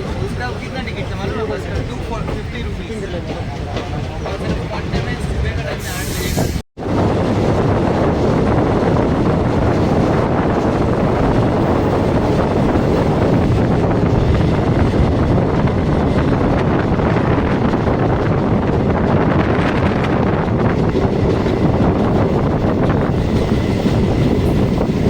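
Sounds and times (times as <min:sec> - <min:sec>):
moving train running noise: 0:00.0 - 0:25.0
wind buffeting microphone: 0:00.0 - 0:25.0.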